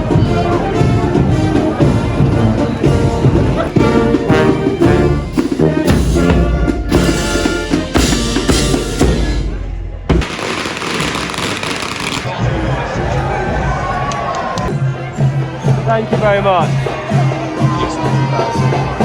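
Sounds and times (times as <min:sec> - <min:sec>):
brass and drums band playing: 0:00.0 - 0:13.9, 0:14.7 - 0:19.0
crowd noise: 0:00.0 - 0:19.0.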